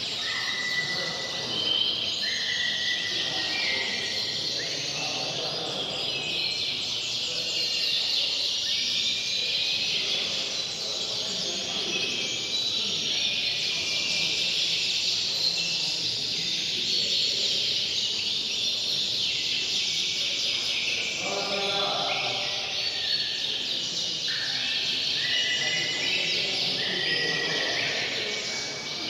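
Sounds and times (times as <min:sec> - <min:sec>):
canaries singing trills: 0:00.0 - 0:29.0.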